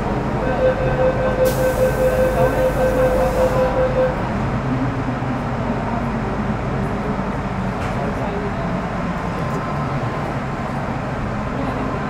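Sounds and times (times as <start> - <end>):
electric train whine: 0.0 - 4.3
train rumbling in a tunnel: 0.0 - 12.0.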